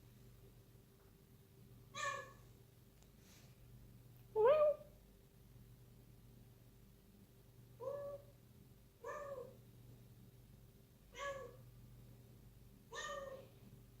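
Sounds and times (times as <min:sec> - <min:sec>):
kitten meowing: 0:02.0 - 0:02.4, 0:12.9 - 0:13.5.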